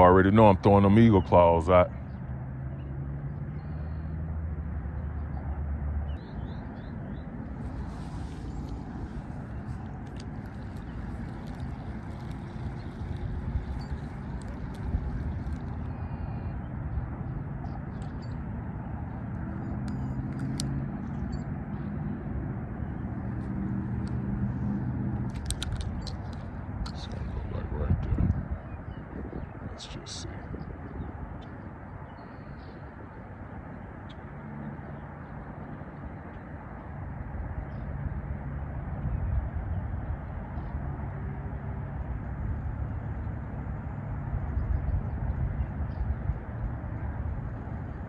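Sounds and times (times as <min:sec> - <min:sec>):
vehicle engine droning: 0:00.0 - 0:28.4
outdoor background noise: 0:00.0 - 0:48.0
low motor hum: 0:02.0 - 0:29.8, 0:38.9 - 0:48.0.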